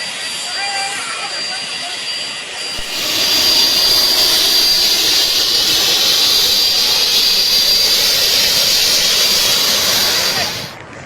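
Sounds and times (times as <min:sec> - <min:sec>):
faint thin whistle: 0:02.7 - 0:10.8
gas hissing from a tank: 0:02.7 - 0:10.8.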